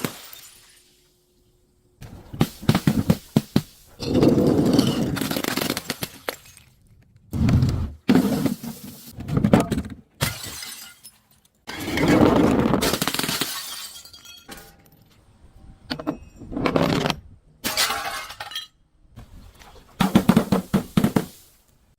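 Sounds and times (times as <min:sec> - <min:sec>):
glass bottles shattering: 0:00.0 - 0:01.0, 0:04.0 - 0:06.8, 0:10.2 - 0:12.2, 0:12.8 - 0:15.0, 0:17.6 - 0:18.8.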